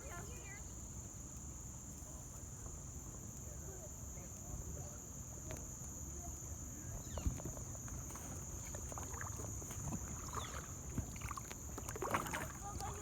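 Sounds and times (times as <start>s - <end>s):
paddle splashes and drips: 7.2s - 13.0s.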